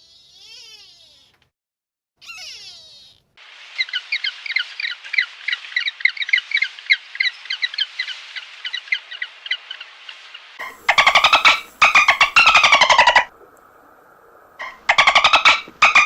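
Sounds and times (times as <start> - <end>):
flock of birds calling: 3.4 - 13.3, 14.6 - 16.0.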